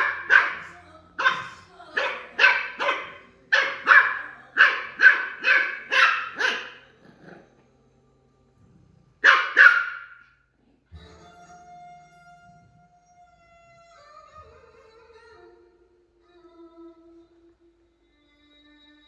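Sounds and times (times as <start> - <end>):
puppy barking: 0.0 - 7.4, 9.2 - 10.3.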